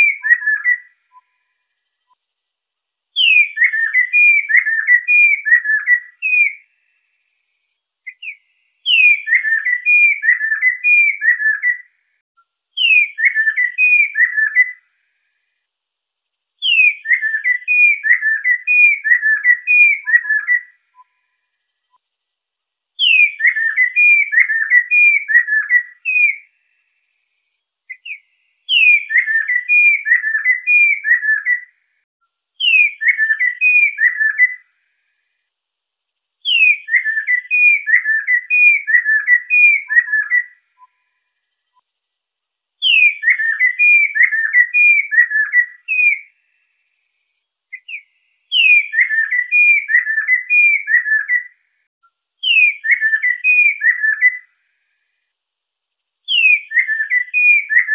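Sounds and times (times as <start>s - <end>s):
laughingthrush singing whistled phrases: 0.0s - 1.4s, 3.2s - 6.8s, 8.0s - 11.9s, 12.8s - 14.8s, 16.6s - 21.3s, 23.0s - 26.5s, 27.9s - 31.8s, 32.6s - 34.7s, 36.4s - 41.8s, 42.8s - 46.6s, 47.7s - 51.6s, 52.4s - 54.5s, 56.3s - 57.9s.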